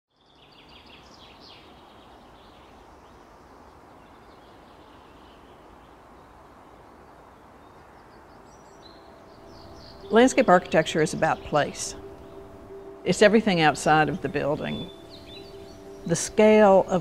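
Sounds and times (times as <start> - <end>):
birds chirping: 0.1 - 17.0
steady outdoor hiss: 0.1 - 17.0.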